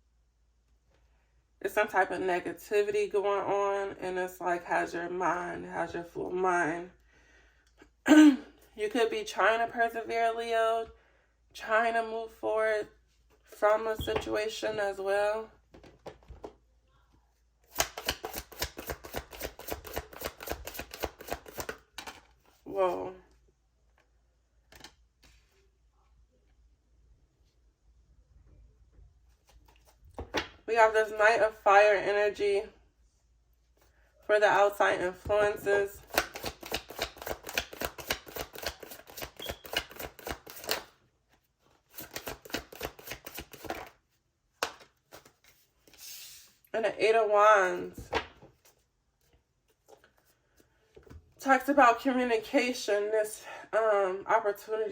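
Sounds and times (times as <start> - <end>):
cards shuffled by hand: 17.7 - 22.6, 24.7 - 25.6, 29.3 - 30.6, 36.0 - 40.9, 41.7 - 44.0, 44.6 - 46.6.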